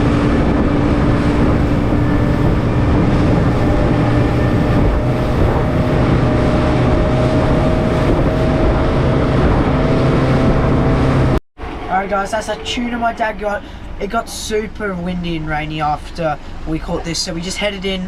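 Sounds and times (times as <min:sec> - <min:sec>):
rushing water: 0:00.0 - 0:11.4
motorboat engine running: 0:00.0 - 0:13.0
wind buffeting microphone: 0:00.0 - 0:14.8.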